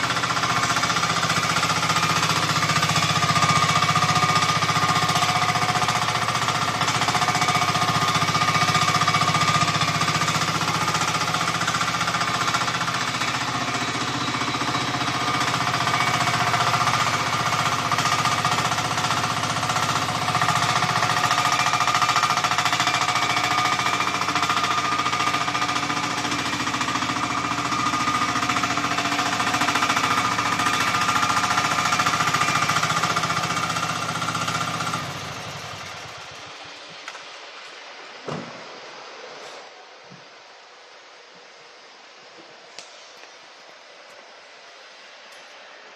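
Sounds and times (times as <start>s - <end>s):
hydraulic breaker hammering: 0.0s - 35.0s
excavator engine running: 0.0s - 41.6s.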